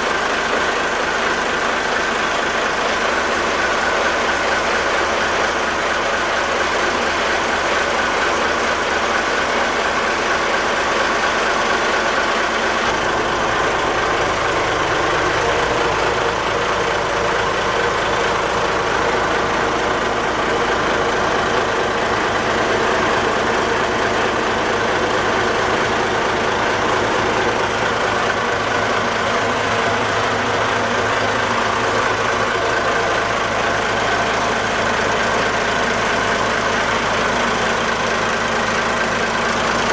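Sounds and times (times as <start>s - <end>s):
deeper engine rumble: 0.0s - 39.9s.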